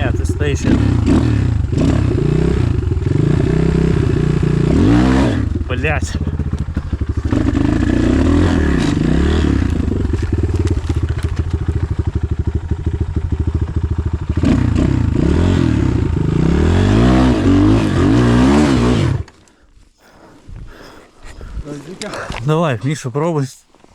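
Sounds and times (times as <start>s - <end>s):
dirt bike engine revving: 0.0s - 22.8s.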